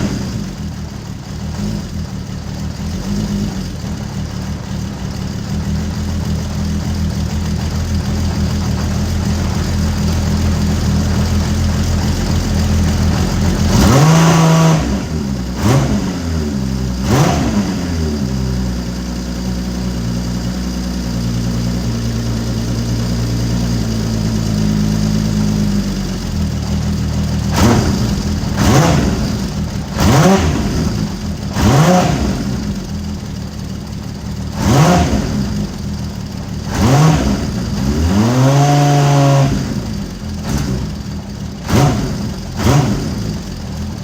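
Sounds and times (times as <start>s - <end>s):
motorcycle engine idling and revving: 0.0s - 44.0s.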